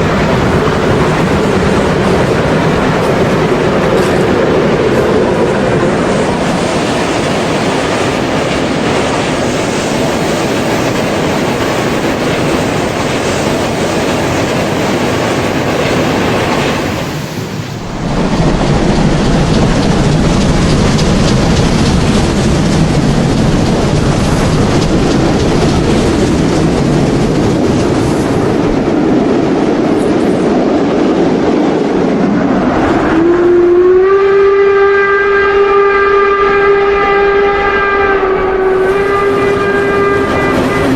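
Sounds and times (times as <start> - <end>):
model steam locomotive running: 0.0 - 31.3
clatter of rolling wagons: 17.9 - 29.2
steam whistle: 33.0 - 40.9.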